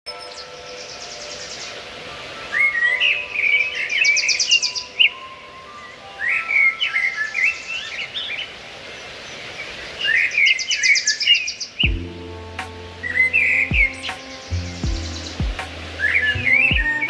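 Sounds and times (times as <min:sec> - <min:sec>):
faint background hiss: 0:00.1 - 0:17.0
songbird warbling and trilling: 0:02.5 - 0:17.0
low humming tone: 0:11.9 - 0:17.0.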